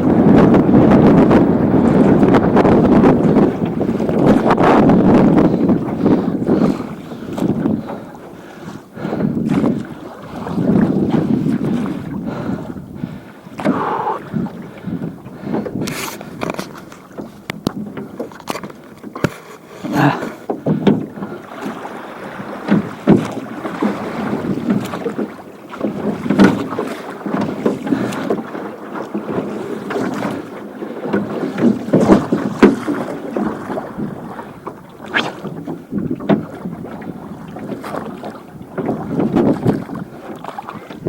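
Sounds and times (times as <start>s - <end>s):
wind buffeting microphone: 0.0s - 19.1s, 19.8s - 41.0s
oars splashing and knocking: 0.0s - 41.0s.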